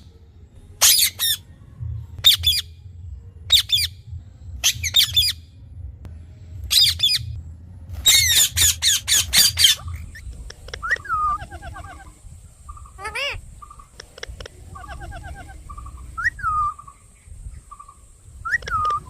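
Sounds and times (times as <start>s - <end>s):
parrot squawking: 0.8s - 1.4s, 4.6s - 5.4s, 6.7s - 7.4s, 8.0s - 16.9s.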